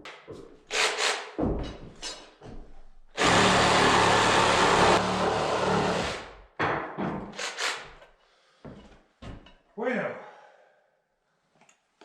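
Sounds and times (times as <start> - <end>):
power tool running: 3.2 - 6.3.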